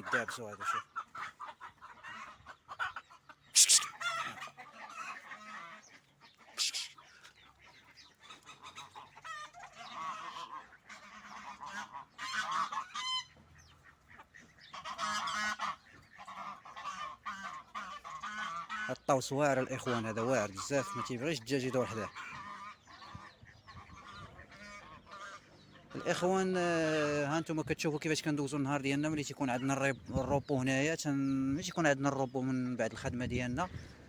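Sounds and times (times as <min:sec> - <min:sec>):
fowl honking calls: 0:00.0 - 0:27.4
sharp loud squawks: 0:03.5 - 0:04.2, 0:06.5 - 0:07.0.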